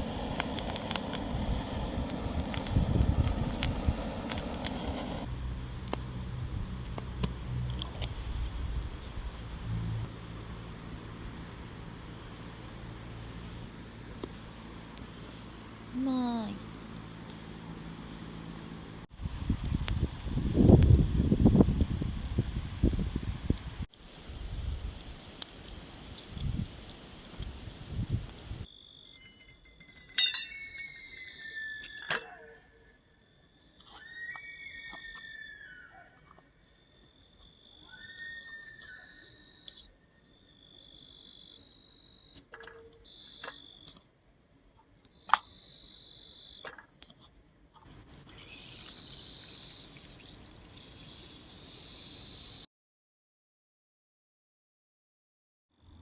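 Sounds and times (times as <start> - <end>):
steady hiss: 0.0 - 5.4, 19.1 - 28.7, 47.8 - 52.7
wind gusting on microphone: 0.0 - 5.4, 19.1 - 25.1, 26.3 - 26.8, 27.4 - 28.7
insects trilling: 30.5 - 42.4, 43.0 - 44.0, 45.1 - 46.7, 48.3 - 52.7.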